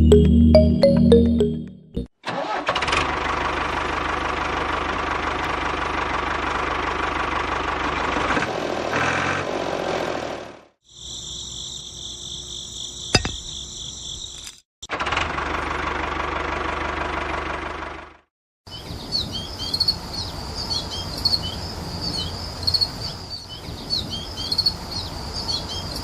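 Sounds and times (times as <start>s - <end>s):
small engine running: 2.4s - 10.7s, 14.9s - 18.2s.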